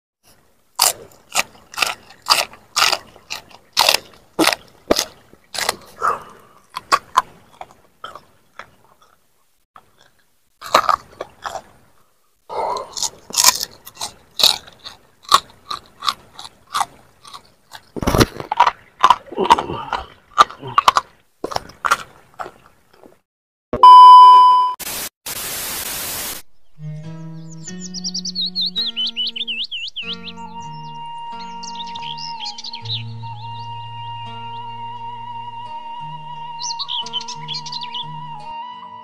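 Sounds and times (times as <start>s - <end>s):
crunching and chewing vegetables: 0.2s - 23.2s.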